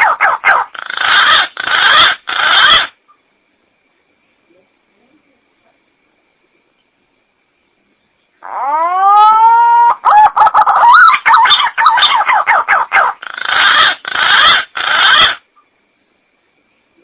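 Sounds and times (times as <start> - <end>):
pigeon calling: 0.0 - 3.0, 8.4 - 15.5.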